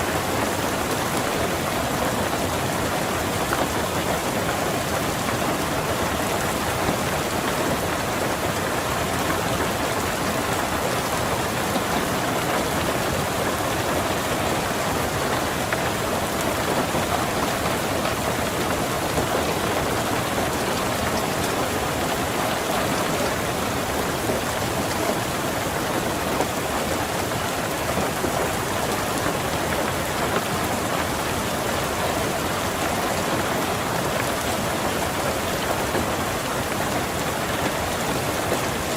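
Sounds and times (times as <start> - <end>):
rain falling on a car: 0.0 - 38.9.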